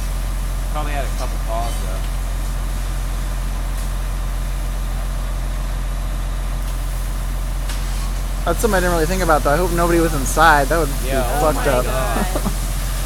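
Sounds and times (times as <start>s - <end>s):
even hiss: 8.5s - 13.0s.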